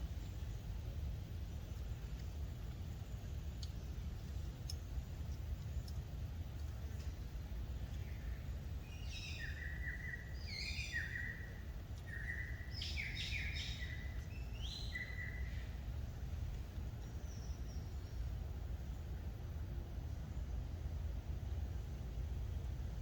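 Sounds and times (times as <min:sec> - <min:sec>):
low background rumble: 0:00.0 - 0:23.0
bird calling: 0:08.1 - 0:15.7.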